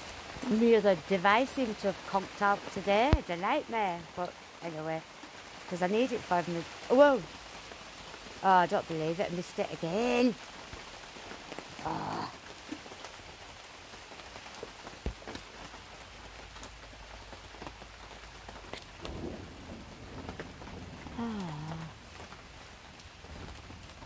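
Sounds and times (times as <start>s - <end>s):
heavy rain: 0.0s - 24.0s
raindrops tapping: 0.0s - 24.0s
person humming: 11.8s - 12.4s, 21.1s - 22.0s.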